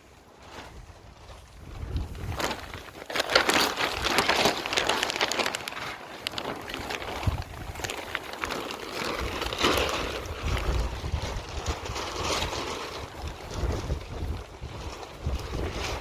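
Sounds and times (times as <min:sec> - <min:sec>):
wind gusting over microphone: 0:00.7 - 0:02.9, 0:07.0 - 0:08.0, 0:09.2 - 0:16.0.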